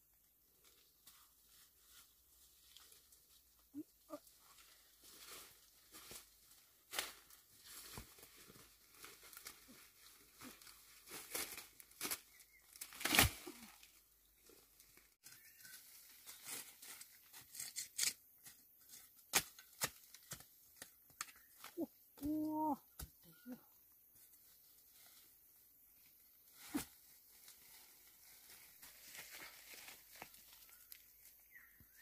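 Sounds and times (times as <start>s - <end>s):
leaves crackling and rustling: 0.4s - 18.1s, 24.1s - 32.0s.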